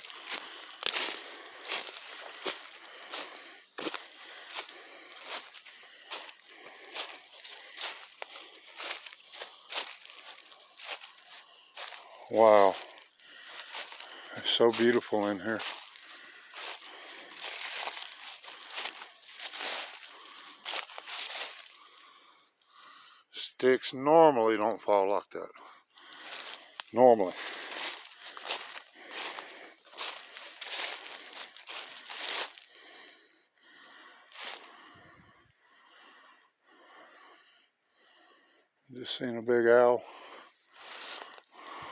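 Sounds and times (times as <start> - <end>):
footsteps crunching dry leaves: 0.0 - 22.2, 26.0 - 33.0, 34.3 - 34.8, 40.6 - 41.9
person breathing hard: 0.0 - 23.3, 25.5 - 38.8, 40.0 - 41.9.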